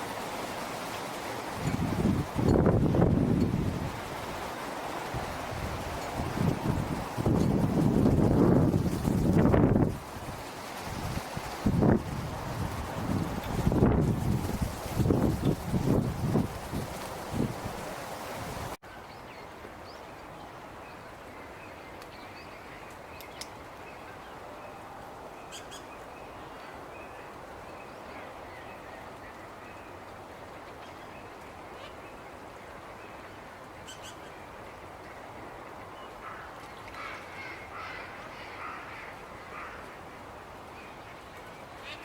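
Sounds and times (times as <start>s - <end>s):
background hiss: 0.0s - 42.0s
wind buffeting microphone: 1.5s - 18.8s.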